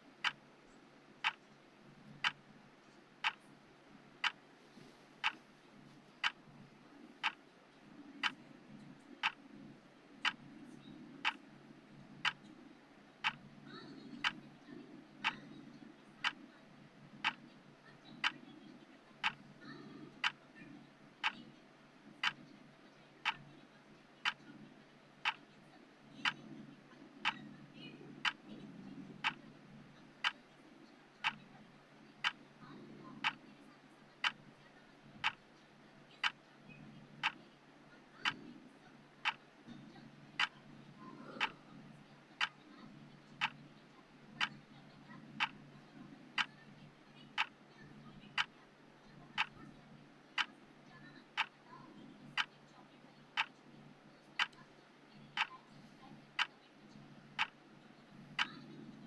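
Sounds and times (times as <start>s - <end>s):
timer ticking: 0.0s - 0.5s, 1.2s - 2.5s, 3.2s - 3.5s, 4.2s - 4.4s, 5.2s - 5.4s, 6.2s - 6.4s, 7.2s - 7.4s, 8.2s - 8.4s, 9.2s - 9.4s, 10.2s - 11.6s, 12.2s - 12.5s, 13.2s - 16.5s, 17.2s - 18.6s, 19.2s - 20.6s, 21.2s - 21.5s, 22.1s - 22.5s, 23.2s - 23.6s, 24.2s - 24.5s, 25.2s - 25.6s, 26.2s - 26.6s, 27.2s - 30.5s, 31.1s - 53.7s, 54.3s - 59.0s
faint low background noise: 0.0s - 59.0s.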